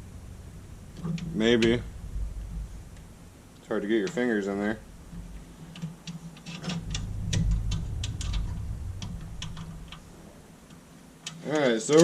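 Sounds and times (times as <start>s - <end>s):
low hum: 0.0s - 11.2s
metallic clicks of nuts and bolts: 5.1s - 10.0s.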